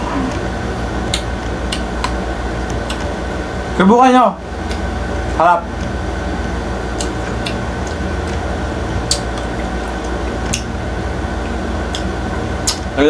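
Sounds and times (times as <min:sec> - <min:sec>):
person chewing juicy fruit: 0:00.0 - 0:03.2, 0:05.7 - 0:13.0
air conditioner hum: 0:00.0 - 0:13.0.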